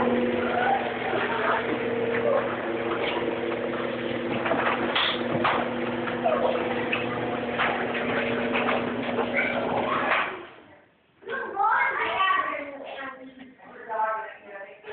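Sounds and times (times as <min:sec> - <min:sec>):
garage door motor hum: 0:00.0 - 0:10.6
door rattling and clicking: 0:01.6 - 0:10.4.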